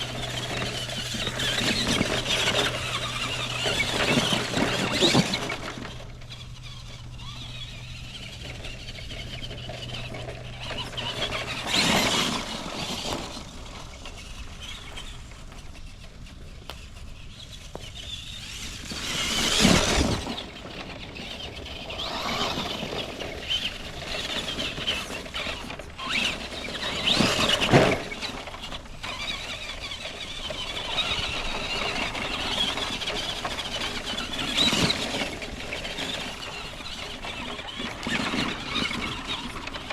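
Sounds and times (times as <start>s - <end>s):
toy car motor whining: 0.0s - 39.9s.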